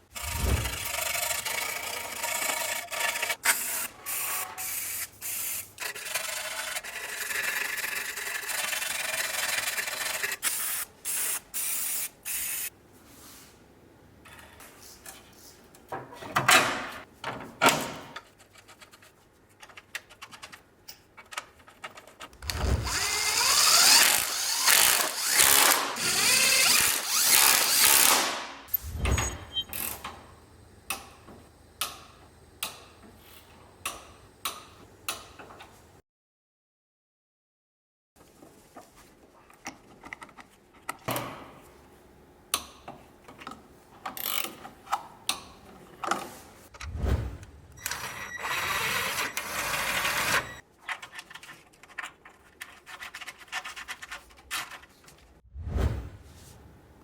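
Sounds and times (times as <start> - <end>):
scraping and rubbing: 0.1 - 3.4, 48.8 - 56.7
power tool running: 22.5 - 28.3.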